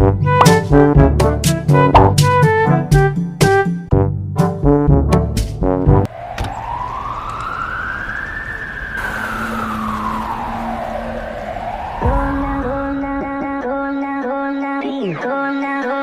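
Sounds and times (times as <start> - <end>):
brass music stabs: 0.0 - 6.1
siren wailing: 6.1 - 14.0.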